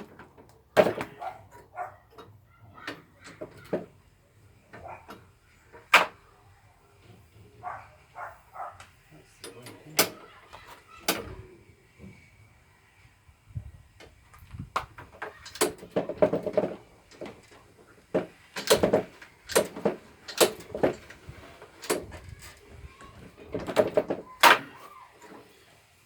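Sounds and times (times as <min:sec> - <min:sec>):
knocks and metallic clattering: 0:00.0 - 0:04.0, 0:14.8 - 0:25.4.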